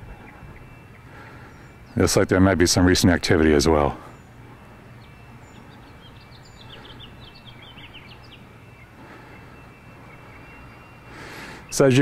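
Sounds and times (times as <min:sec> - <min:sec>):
small bird chirping: 0:03.5 - 0:12.0.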